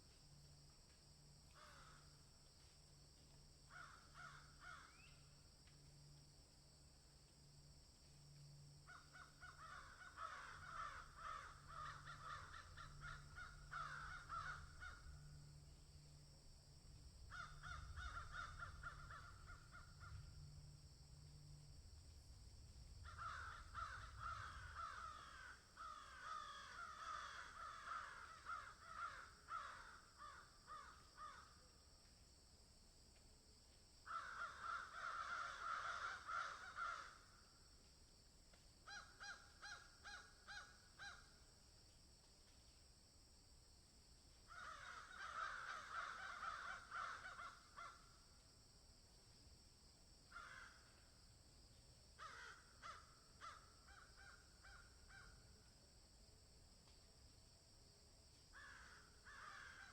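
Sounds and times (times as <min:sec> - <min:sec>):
faint bird calls: 0:03.7 - 0:05.4, 0:08.3 - 0:16.2, 0:17.2 - 0:20.7, 0:23.0 - 0:31.5.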